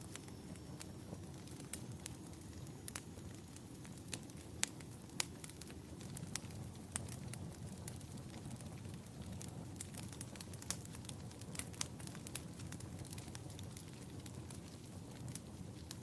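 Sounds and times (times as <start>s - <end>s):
fire crackling and popping: 0.0s - 16.0s
low rumble of fire: 0.0s - 16.0s.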